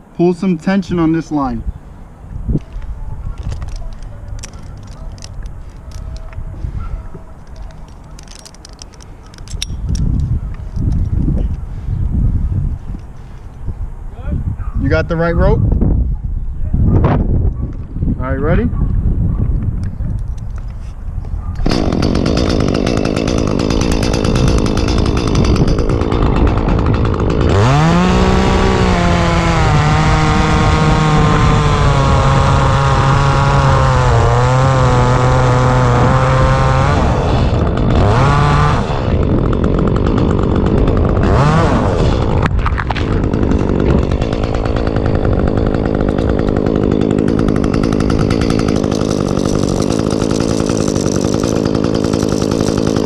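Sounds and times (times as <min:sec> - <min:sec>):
chainsaw revving: 0:21.6 - 0:53.0.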